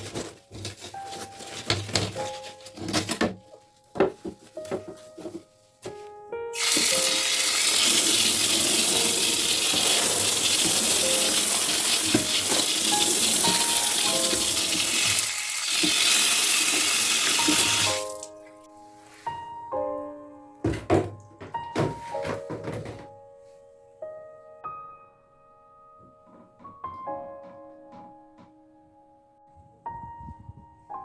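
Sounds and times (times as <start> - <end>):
background music: 0.0 - 31.0
water running from a tap: 6.6 - 18.3.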